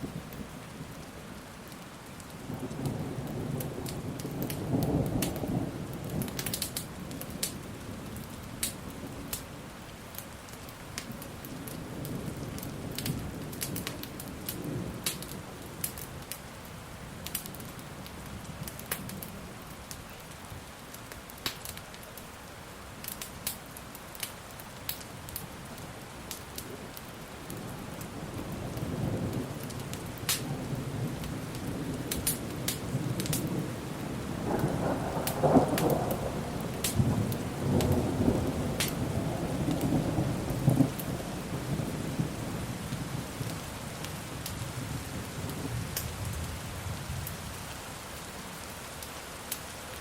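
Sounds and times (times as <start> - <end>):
crackling wood fire: 0.0 - 50.0
steady rain: 0.0 - 50.0
rolling thunder: 27.5 - 47.3.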